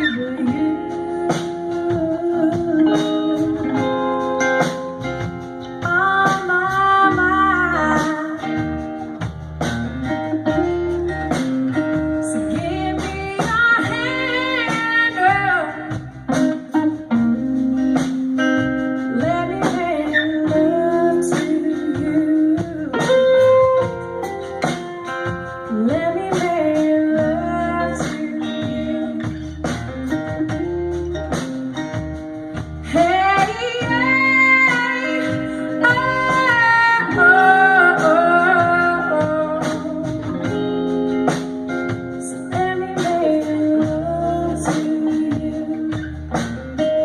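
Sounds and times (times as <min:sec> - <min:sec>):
blues guitar playing: 0:00.0 - 0:47.0
person singing: 0:32.9 - 0:40.6, 0:42.3 - 0:46.2.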